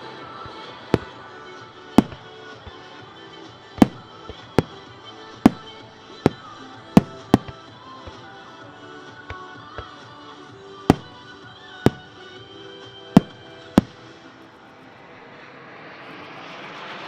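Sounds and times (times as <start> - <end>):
background music: 0.0 - 15.2
fireworks bangs: 0.4 - 3.0, 3.7 - 8.4, 10.9 - 12.4, 13.2 - 14.2.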